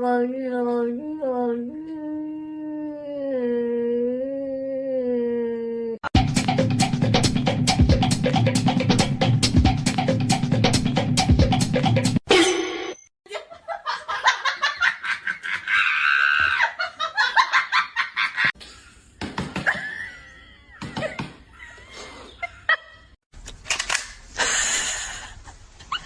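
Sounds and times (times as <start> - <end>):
person laughing: 19.6 - 23.1.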